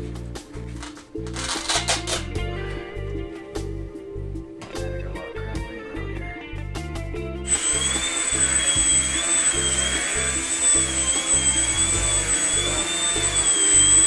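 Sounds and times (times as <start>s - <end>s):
guitar music: 0.0s - 14.0s
model plane motor whining: 7.5s - 14.0s.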